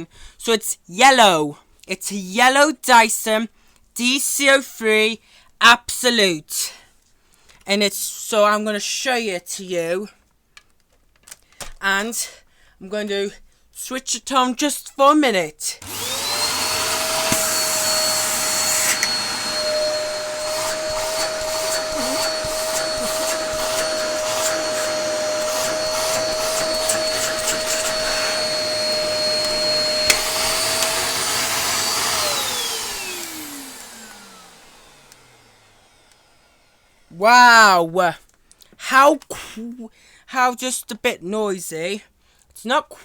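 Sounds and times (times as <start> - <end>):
vacuum cleaner motor whine: 15.8 - 37.1.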